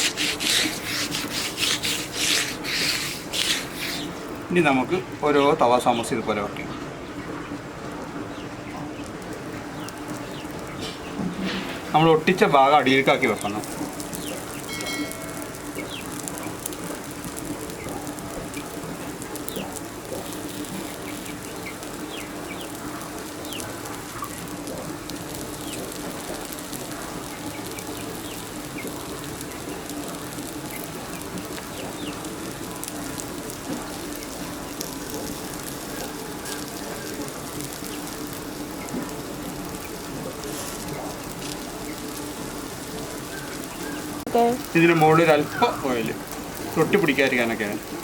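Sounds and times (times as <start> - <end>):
food sizzling in oil: 0.0 - 4.5, 9.1 - 48.0
birds chirping: 0.0 - 16.7, 19.4 - 24.4, 30.6 - 32.4, 43.0 - 47.8.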